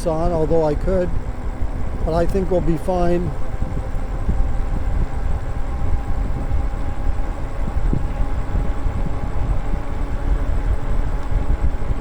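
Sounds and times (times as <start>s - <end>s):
faint hum of electric bike: 0.0s - 12.0s
wind and road noise: 0.0s - 12.0s.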